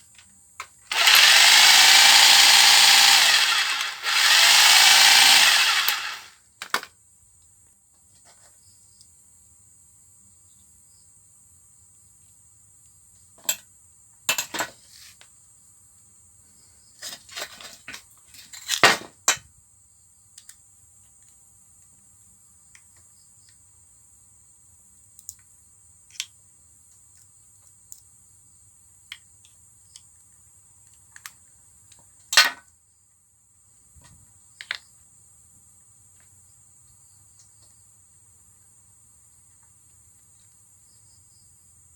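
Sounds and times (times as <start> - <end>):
power drill: 0.9 - 6.3.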